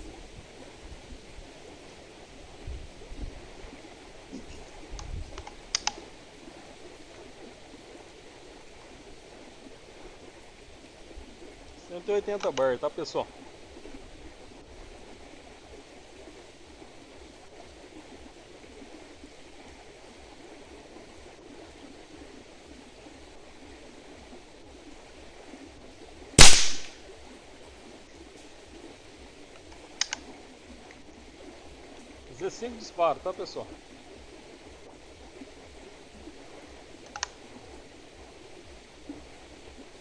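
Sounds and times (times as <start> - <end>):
faint steady hiss: 0.0 - 40.0
air rifle shot: 26.4 - 27.0.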